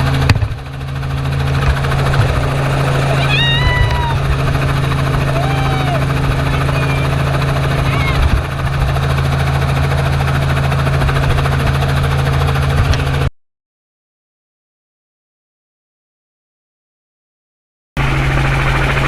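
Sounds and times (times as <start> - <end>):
helicopter rotor and engine: 0.0 - 13.3, 18.0 - 19.0.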